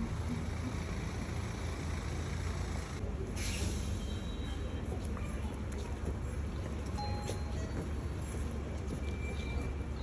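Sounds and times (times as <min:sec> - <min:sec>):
moving vehicle rumble and hiss: 0:00.0 - 0:10.0.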